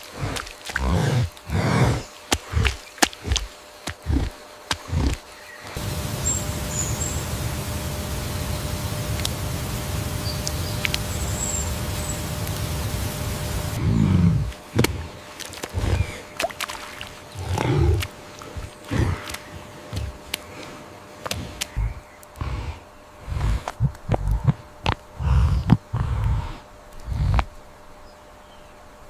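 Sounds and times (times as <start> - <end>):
animal low grunts: 0.0 - 5.3, 13.8 - 16.4, 17.2 - 27.6.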